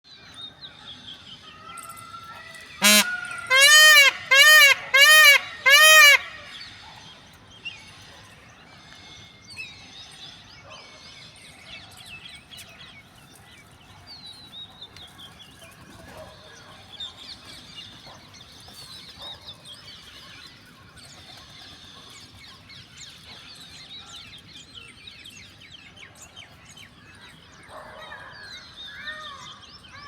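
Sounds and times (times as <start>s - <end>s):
peacock honking calls: 2.7s - 6.8s.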